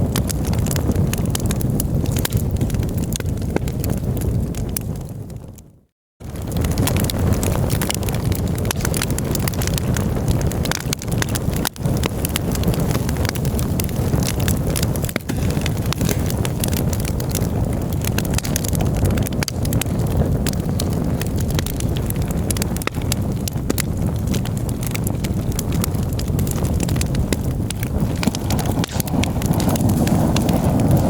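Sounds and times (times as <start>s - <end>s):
campfire crackling: 0.0s - 31.0s
wind on microphone: 0.0s - 31.0s.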